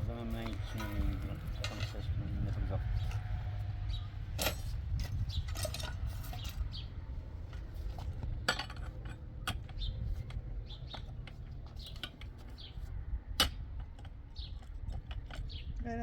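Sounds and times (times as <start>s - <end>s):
steady low rumble: 0.0s - 16.0s
clinks and knocks of hard objects: 0.4s - 3.3s, 4.3s - 6.8s, 7.4s - 15.7s.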